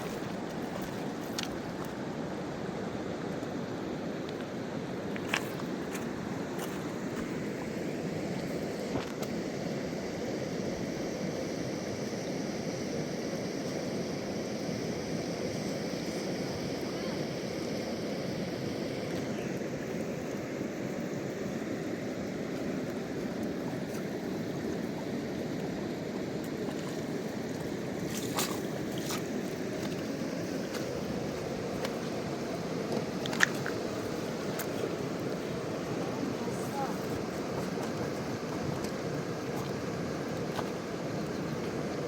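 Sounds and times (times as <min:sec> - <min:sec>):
river rushing: 0:16.4 - 0:42.0.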